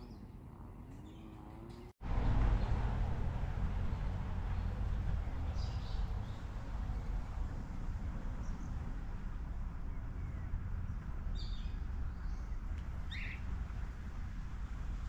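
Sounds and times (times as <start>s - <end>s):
bird calls: 11.3s - 13.5s.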